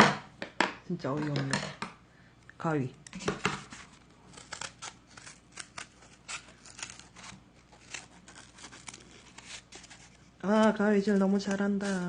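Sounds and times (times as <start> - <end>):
scissors cutting cardboard: 3.2 - 12.0.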